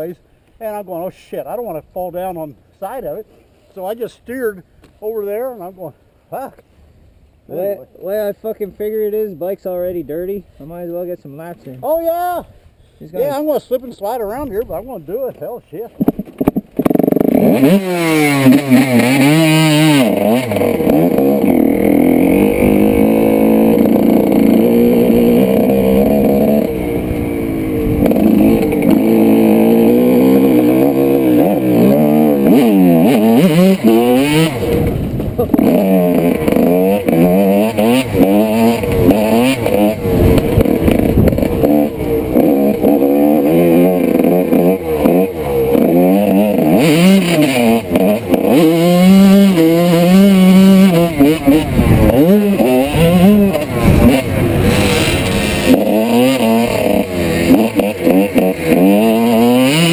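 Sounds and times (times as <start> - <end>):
two-stroke motorcycle engine revving: 16.0 - 59.9.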